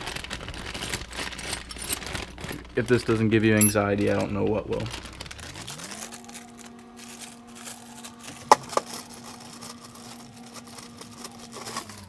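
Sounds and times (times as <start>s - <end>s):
small electric motor humming: 4.9s - 12.0s.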